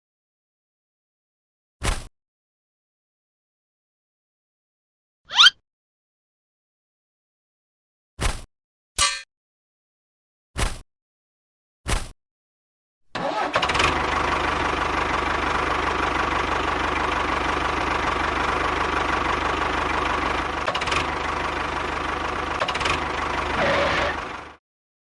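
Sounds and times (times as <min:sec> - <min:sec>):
engine starting and running: 0:13.1 - 0:24.6.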